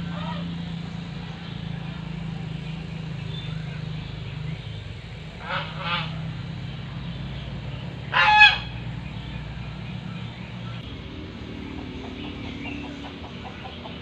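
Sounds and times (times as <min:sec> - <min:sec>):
steady low hum: 0:00.0 - 0:14.0
goose honking: 0:05.4 - 0:06.3, 0:08.1 - 0:08.8.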